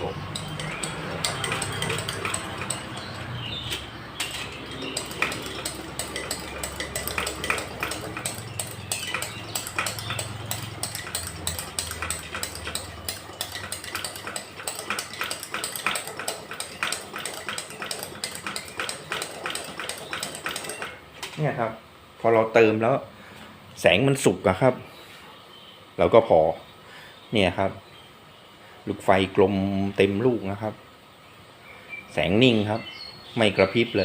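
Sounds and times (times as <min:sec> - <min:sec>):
hand pump strokes: 0:00.0 - 0:21.0.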